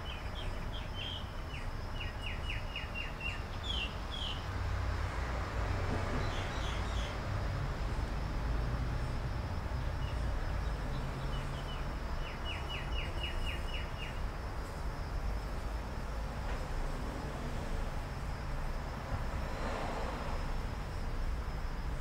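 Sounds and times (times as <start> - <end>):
bird chirping: 0.0 - 4.4, 10.0 - 14.2
low background rumble and hiss: 7.3 - 22.0.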